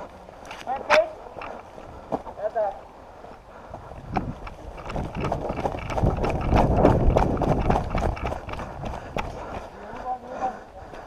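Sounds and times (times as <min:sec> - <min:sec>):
running footsteps: 0:00.0 - 0:11.0
wind buffeting microphone: 0:03.1 - 0:10.2.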